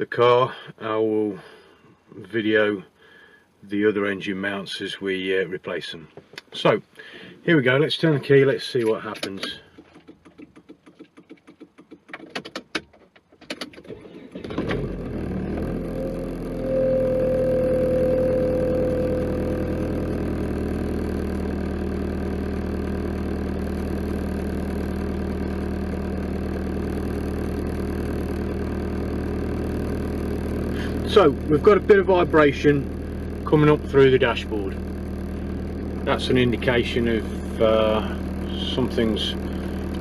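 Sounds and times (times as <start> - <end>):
car engine starting and idling: 8.8 - 40.0.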